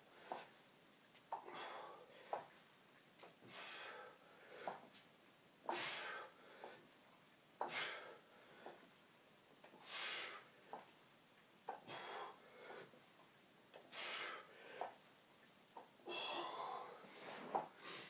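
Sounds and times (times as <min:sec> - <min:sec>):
person breathing hard: 0:01.4 - 0:02.5, 0:03.4 - 0:04.9, 0:05.7 - 0:07.0, 0:07.6 - 0:08.9, 0:09.8 - 0:10.9, 0:11.8 - 0:13.1, 0:13.8 - 0:15.1, 0:16.0 - 0:18.0.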